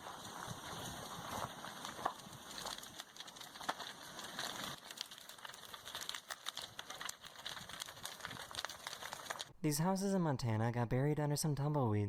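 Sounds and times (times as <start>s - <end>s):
wood crackling and popping: 0.0s - 9.6s.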